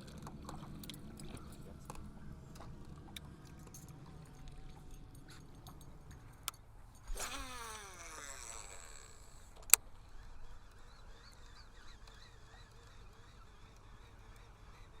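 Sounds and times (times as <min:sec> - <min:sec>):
fishing reel spool whining: 0:00.5 - 0:15.0
sharp reel click: 0:06.4 - 0:13.2.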